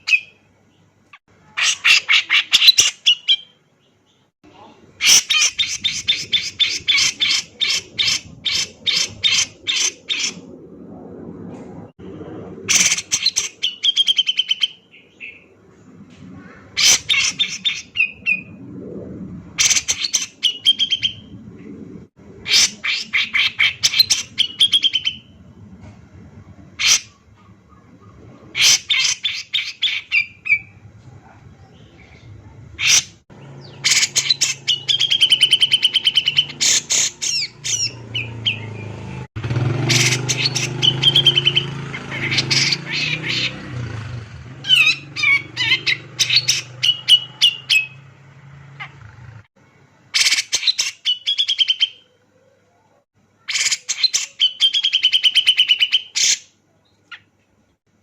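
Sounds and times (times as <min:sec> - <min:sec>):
sharp bird calls: 0:00.0 - 0:10.5, 0:12.7 - 0:15.6, 0:19.6 - 0:21.3, 0:22.4 - 0:25.4, 0:26.8 - 0:30.8, 0:31.8 - 0:48.1, 0:50.2 - 0:52.2, 0:53.4 - 0:57.3
bulbul chattering song: 0:32.8 - 0:43.7, 0:44.6 - 0:48.1.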